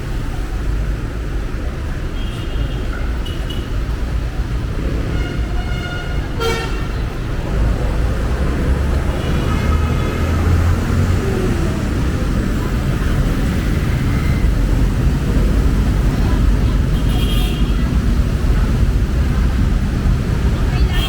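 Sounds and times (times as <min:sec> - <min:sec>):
road traffic passing: 0:00.0 - 0:21.0
vehicle horns tooting: 0:05.0 - 0:07.3, 0:08.9 - 0:11.2.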